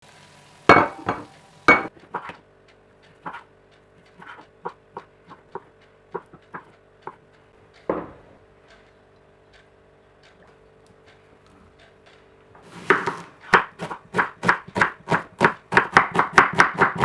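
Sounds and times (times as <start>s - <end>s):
dishes knocking and clinking: 0.7s - 2.4s, 7.8s - 8.4s.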